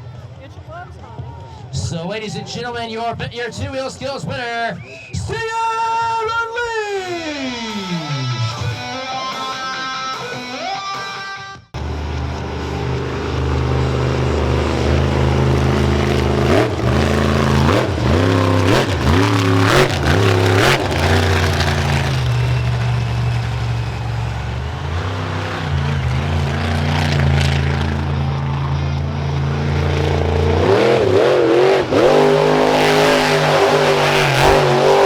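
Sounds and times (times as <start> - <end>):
truck engine idling and revving: 11.8 - 35.0.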